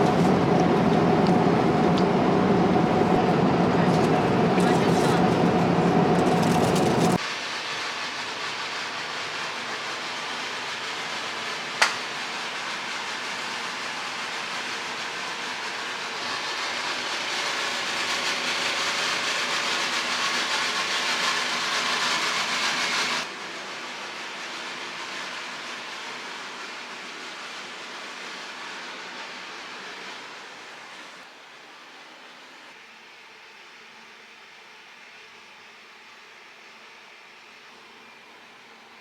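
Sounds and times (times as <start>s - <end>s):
airliner engines and airflow hiss: 0.0s - 39.0s.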